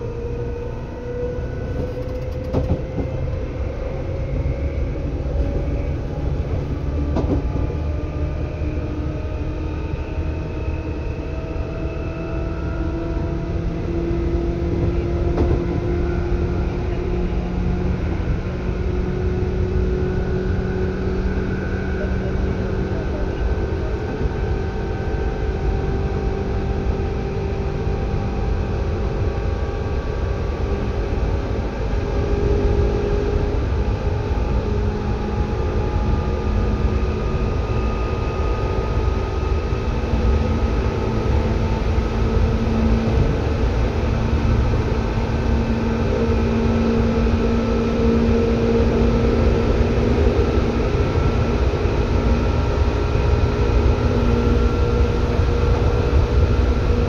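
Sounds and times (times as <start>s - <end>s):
train wheels rumbling: 1.6s - 3.5s.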